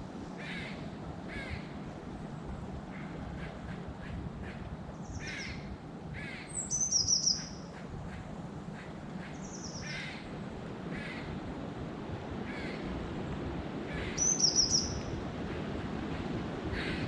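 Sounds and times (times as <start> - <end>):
crows cawing: 0.4 - 1.7, 5.2 - 5.6, 6.2 - 6.5, 8.8 - 10.3, 10.9 - 11.3, 12.5 - 12.8, 16.7 - 17.0
songbird warbling: 5.0 - 7.8, 8.8 - 10.2, 14.0 - 15.1.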